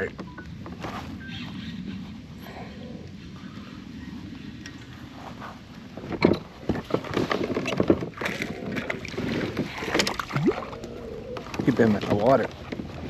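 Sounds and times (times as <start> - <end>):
wind and water hiss: 0.0 - 13.0
knocks and splashes on hull: 6.0 - 10.8.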